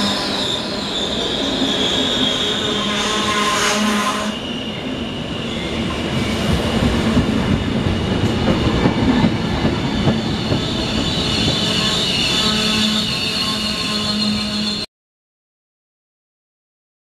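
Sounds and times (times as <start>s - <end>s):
rumble of train wheels on rail: 4.4s - 13.5s
thin wheel squeal: 10.6s - 14.9s.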